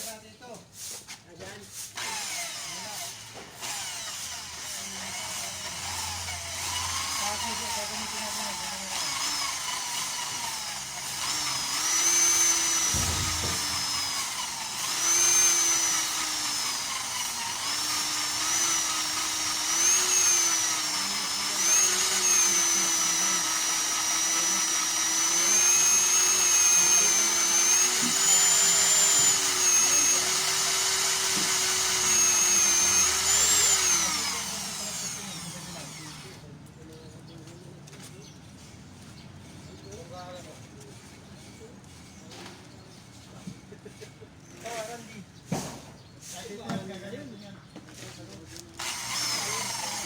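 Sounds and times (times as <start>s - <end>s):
electric drill whining: 2.0s - 36.5s, 48.8s - 50.0s.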